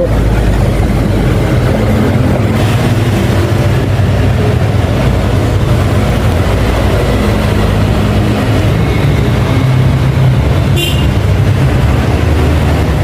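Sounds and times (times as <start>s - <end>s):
low mechanical drone: 0.0s - 13.0s.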